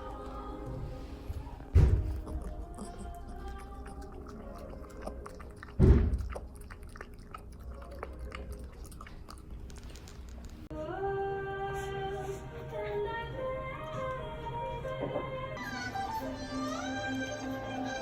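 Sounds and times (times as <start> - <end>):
background music with held notes: 0.0 - 4.1, 10.7 - 18.0
loud thump: 1.7 - 2.3.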